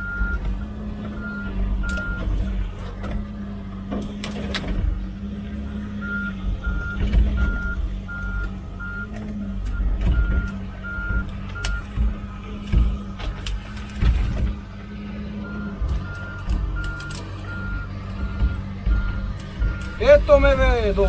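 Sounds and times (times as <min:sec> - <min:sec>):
reversing alarm beeping: 0:00.0 - 0:02.3, 0:05.9 - 0:12.0, 0:15.3 - 0:21.0
excavator diesel engine: 0:00.0 - 0:21.0.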